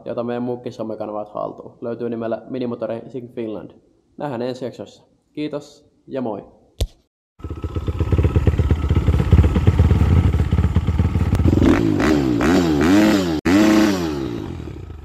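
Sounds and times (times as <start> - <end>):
motorcycle engine revving: 7.4 - 15.0.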